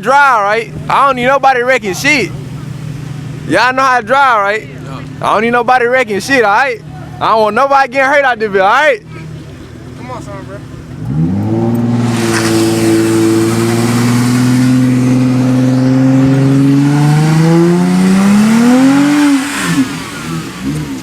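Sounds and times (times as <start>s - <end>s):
car engine accelerating hard: 8.4s - 21.0s.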